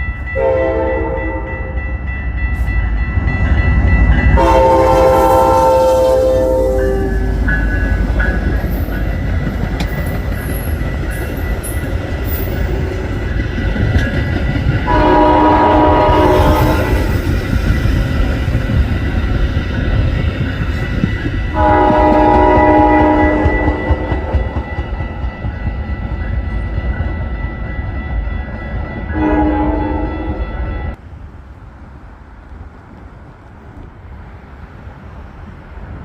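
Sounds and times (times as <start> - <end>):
passing train rumble: 0.0 - 36.0
locomotive air horn chord: 0.4 - 1.8, 4.4 - 7.5, 14.9 - 17.1, 21.5 - 24.3, 29.1 - 30.5.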